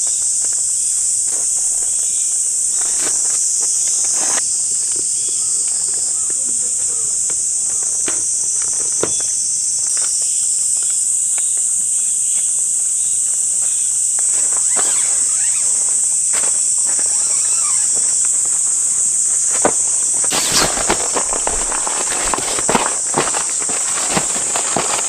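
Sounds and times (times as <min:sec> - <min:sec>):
high-pitched insect chorus: 0:00.0 - 0:25.0
taps and knocks of movement: 0:16.3 - 0:25.0.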